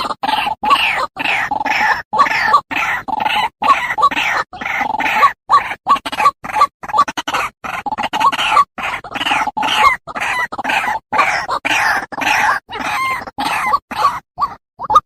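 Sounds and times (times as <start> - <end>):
waterhen calling harsh croaks: 0.0 - 15.0.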